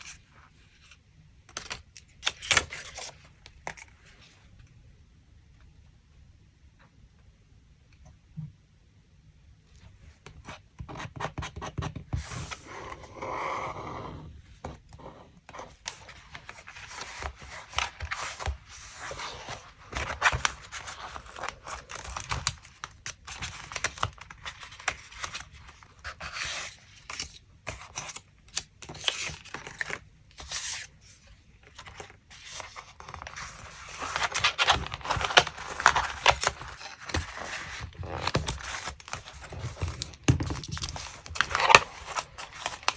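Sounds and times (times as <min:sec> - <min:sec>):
paper rustling and scraping: 0:12.1 - 0:28.2, 0:28.9 - 0:42.9.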